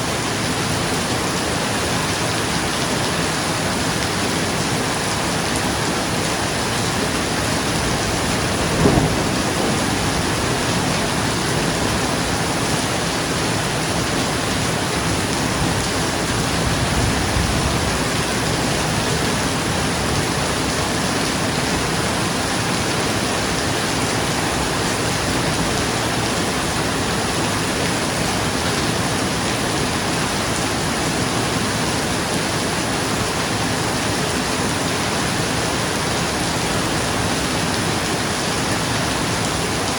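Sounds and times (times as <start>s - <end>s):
rain on a roof: 0.0s - 39.9s
low thunder rumble: 6.5s - 27.4s
thunder crack: 7.0s - 13.8s.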